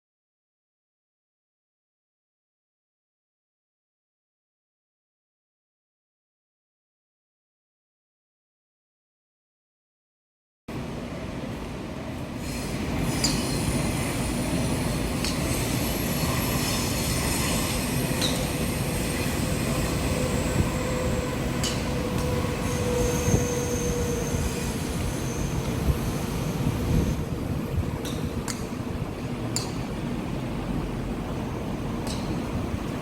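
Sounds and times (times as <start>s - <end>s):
strong wind whistling: 10.9s - 33.0s.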